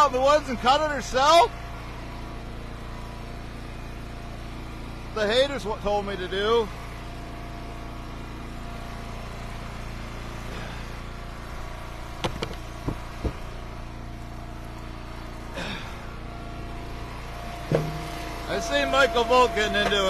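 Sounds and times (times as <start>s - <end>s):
gas engine idling: 0.0s - 20.0s
sharp knocks: 12.2s - 13.5s, 17.7s - 18.4s.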